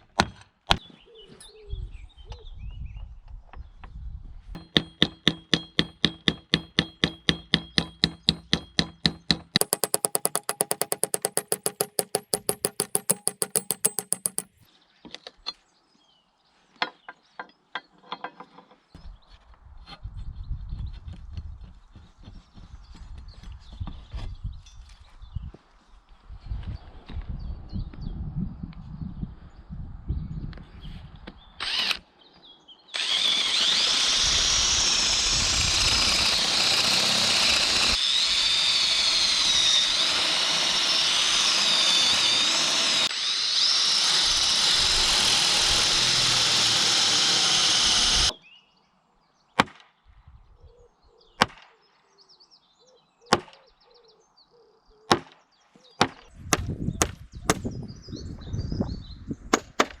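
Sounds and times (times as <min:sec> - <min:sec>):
power tool whining in wood: 0:09.1 - 0:14.5, 0:31.6 - 0:32.0, 0:33.0 - 0:48.3
sharp single knocks: 0:59.6 - 1:00.0.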